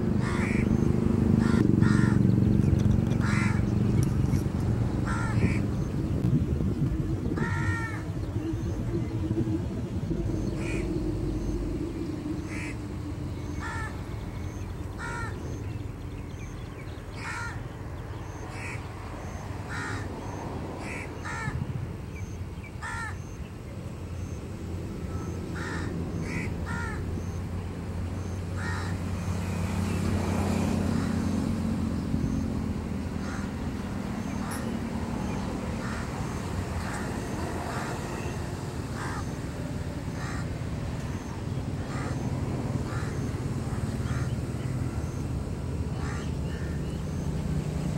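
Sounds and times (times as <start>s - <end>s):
steady low rumble: 0.0s - 17.2s
bird harsh crow-like calls: 0.2s - 2.5s, 3.2s - 3.8s, 5.0s - 5.9s, 7.4s - 9.2s, 10.2s - 15.6s, 17.1s - 21.6s, 22.8s - 23.4s, 25.0s - 27.4s, 28.6s - 29.1s, 33.2s - 39.4s, 40.1s - 45.2s, 45.9s - 47.2s.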